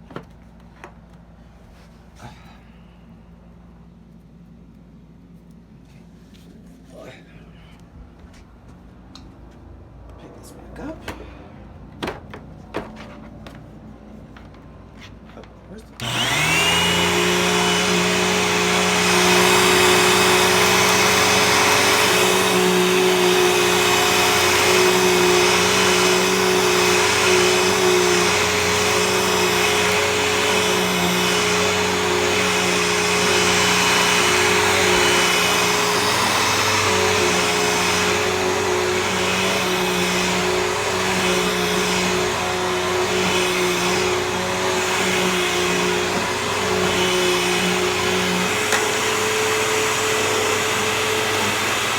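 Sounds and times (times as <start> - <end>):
vacuum cleaner running: 16.0 - 51.9.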